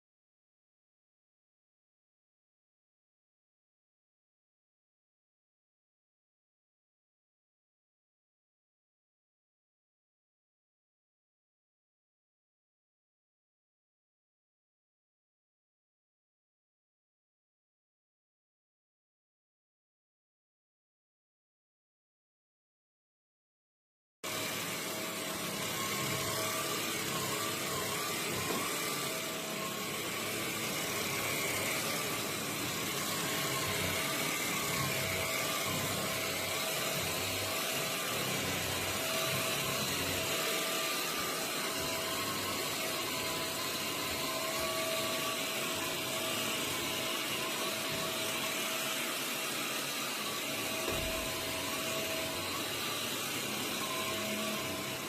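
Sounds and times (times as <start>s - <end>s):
vacuum cleaner running: 24.2s - 55.0s.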